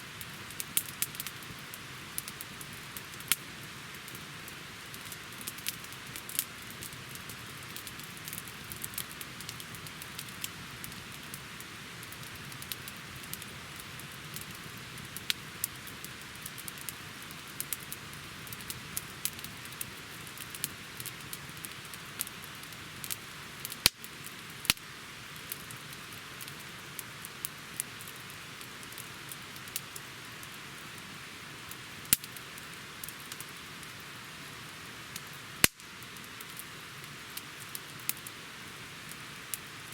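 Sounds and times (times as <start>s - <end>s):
campfire hissing: 0.0s - 39.9s
fire crackling and popping: 0.0s - 39.9s.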